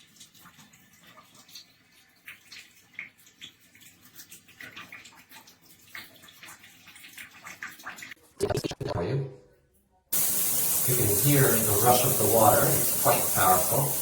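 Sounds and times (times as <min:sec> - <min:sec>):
water splashing on surfaces: 0:00.0 - 0:08.9, 0:10.2 - 0:14.0
shower spraying water: 0:10.2 - 0:14.0.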